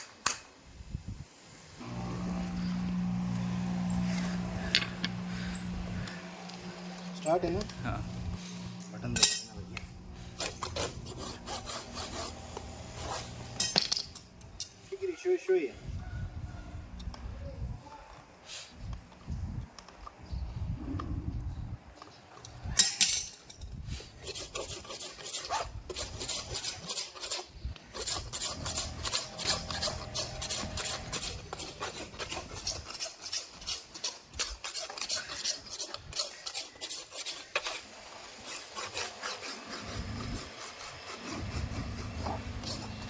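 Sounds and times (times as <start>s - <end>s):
rasp filing a hoof: 2.2s - 14.4s, 22.6s - 43.0s.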